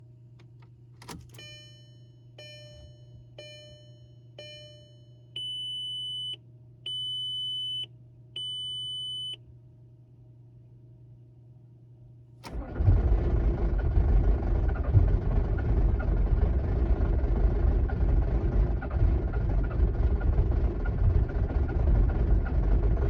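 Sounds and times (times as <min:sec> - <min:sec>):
faint steady hum: 0:00.0 - 0:12.6
dashboard warning dings: 0:01.0 - 0:05.5.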